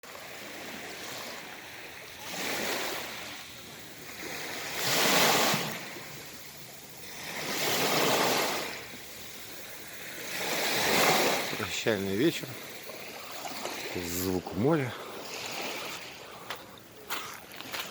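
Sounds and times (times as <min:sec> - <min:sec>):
sea waves washing in: 0:00.0 - 0:17.9.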